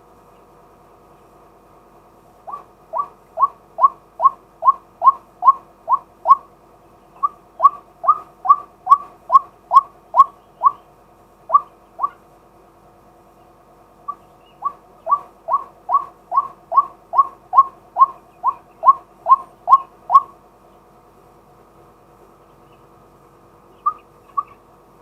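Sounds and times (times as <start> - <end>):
waterhen calling: 2.4 - 6.5, 7.1 - 10.9, 11.5 - 12.3, 14.1 - 20.4, 23.6 - 24.7.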